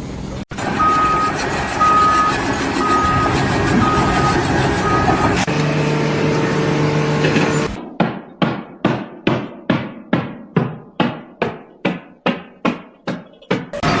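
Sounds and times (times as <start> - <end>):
steady hum with noise: 0.0 - 8.1.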